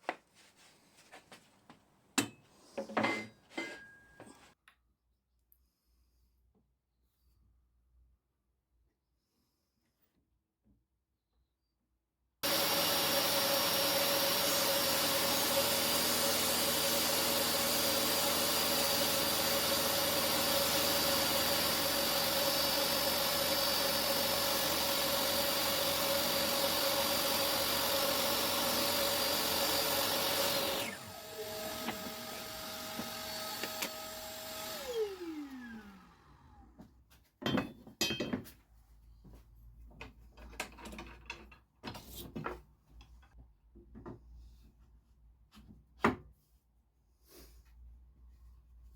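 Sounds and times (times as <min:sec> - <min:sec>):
table saw whining: 0:12.4 - 0:36.8.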